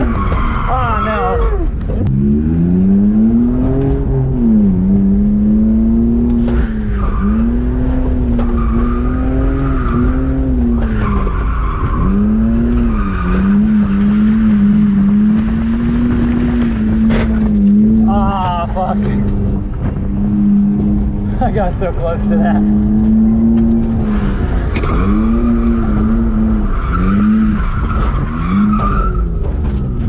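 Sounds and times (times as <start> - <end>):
tires squealing: 0.0 - 30.0
car engine revving high: 2.0 - 30.0.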